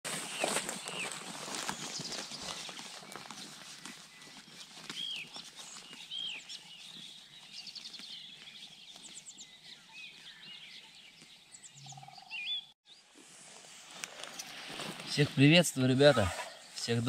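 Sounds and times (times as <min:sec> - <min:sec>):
songbirds singing: 0:00.2 - 0:13.1.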